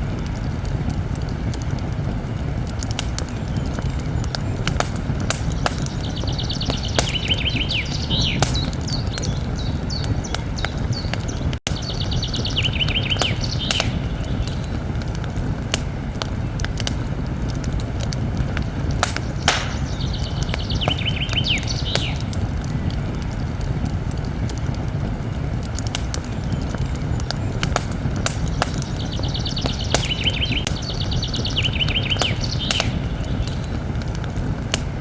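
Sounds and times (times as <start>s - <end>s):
campfire crackling and popping: 0.0s - 35.0s
low rumble of burning wood: 0.0s - 35.0s
songbird trilling: 5.4s - 14.7s, 19.1s - 22.3s, 28.4s - 33.7s.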